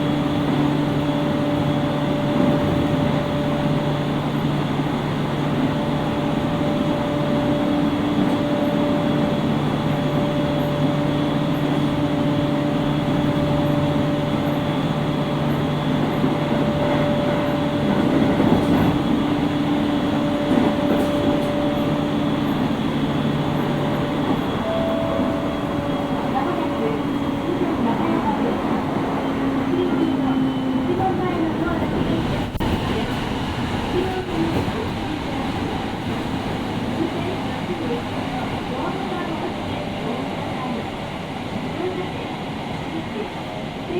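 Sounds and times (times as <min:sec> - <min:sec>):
electric train drive hum: 0:00.0 - 0:43.9
wheels rumbling on rail: 0:00.0 - 0:43.9.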